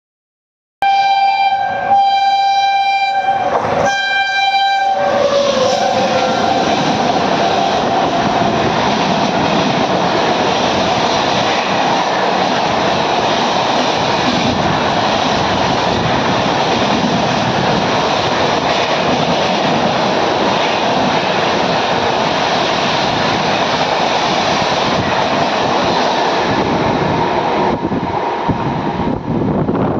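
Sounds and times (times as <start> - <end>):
train horn blasts: 0.8 - 8.6
train coaches rattling on rails: 2.8 - 29.9.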